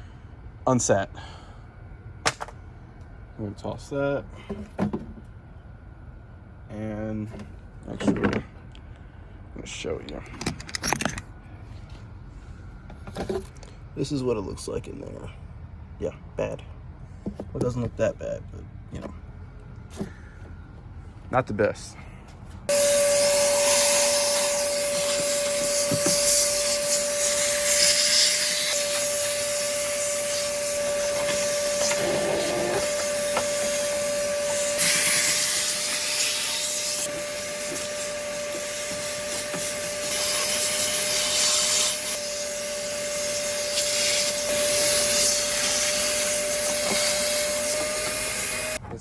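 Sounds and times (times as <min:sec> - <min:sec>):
vacuum cleaner whining: 0:22.7 - 0:48.8.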